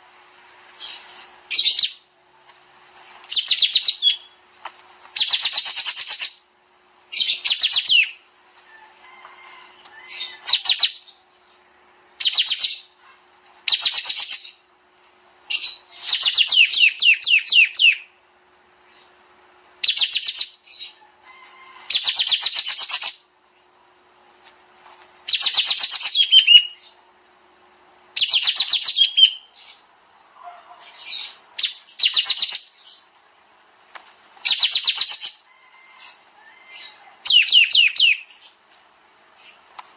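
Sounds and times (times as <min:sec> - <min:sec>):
songbird rapid high trill: 0:19.8 - 0:23.3, 0:25.3 - 0:27.0, 0:28.2 - 0:33.0, 0:34.4 - 0:38.6.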